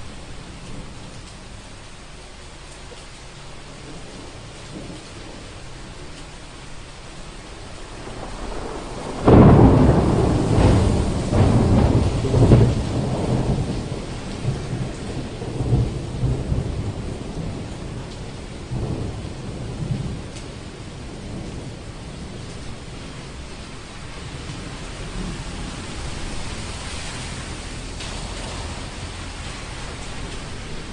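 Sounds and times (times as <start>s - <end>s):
steady rain: 0.0s - 30.9s
thunder cracks and rumble: 3.6s - 30.9s.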